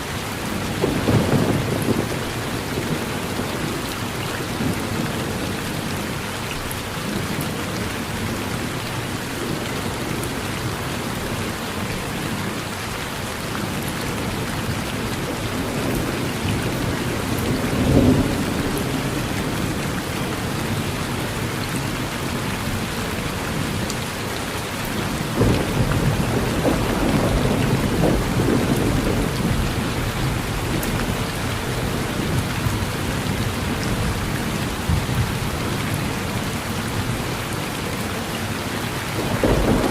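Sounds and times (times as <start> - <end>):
rain falling on a porch: 0.0 - 39.9
rolling thunder rumble: 0.6 - 6.0, 13.6 - 22.9, 25.0 - 37.2, 39.2 - 39.9
thunder clap: 25.3 - 31.2, 39.2 - 39.9.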